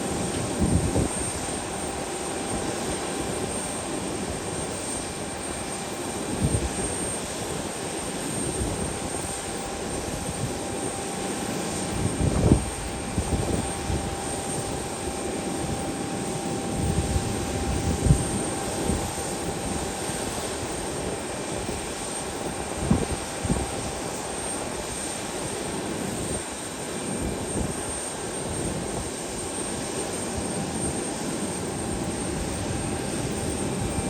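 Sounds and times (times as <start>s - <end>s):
airliner engines droning: 0.0s - 34.0s
wind buffeting microphone: 0.1s - 1.6s, 11.8s - 15.9s, 16.5s - 20.0s, 22.6s - 24.0s.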